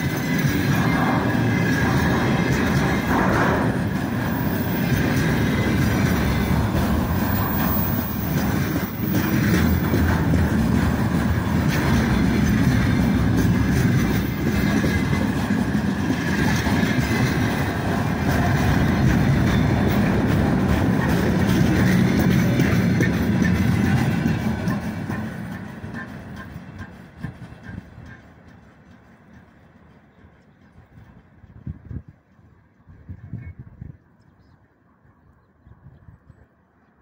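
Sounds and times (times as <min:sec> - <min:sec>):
steel wheels on rails: 0:00.0 - 0:34.0.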